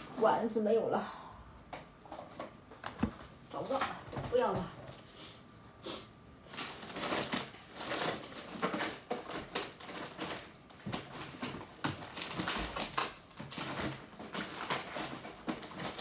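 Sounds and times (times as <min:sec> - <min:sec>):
rummaging rustles and clicks: 0:06.5 - 0:16.0.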